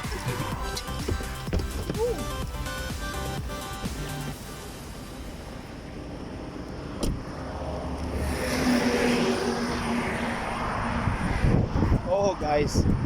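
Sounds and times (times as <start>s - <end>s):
wind rushing: 7.3s - 13.0s.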